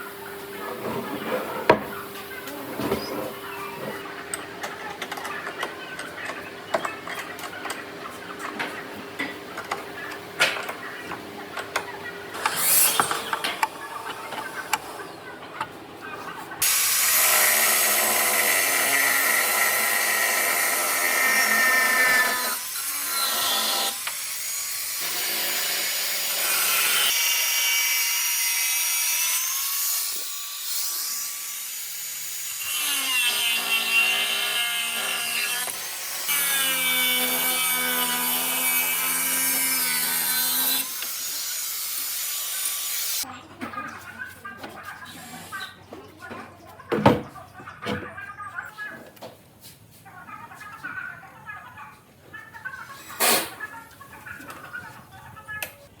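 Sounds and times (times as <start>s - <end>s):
power tool whining on wood: 12.4s - 13.4s.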